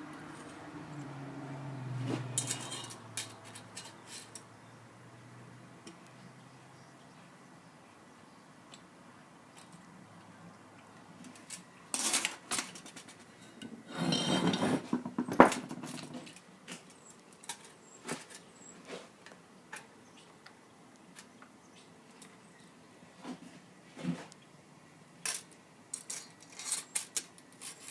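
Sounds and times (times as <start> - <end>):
metal scraping and rattling: 2.0 - 4.4, 11.4 - 16.4
metal parts clinking: 2.4 - 4.4.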